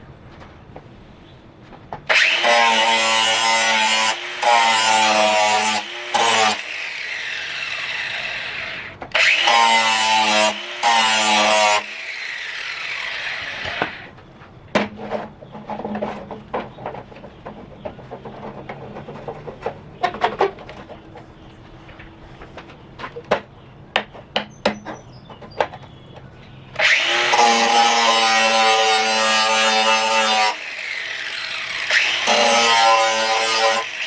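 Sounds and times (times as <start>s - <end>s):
angle grinder grinding steel: 2.1s - 14.1s, 26.8s - 34.0s.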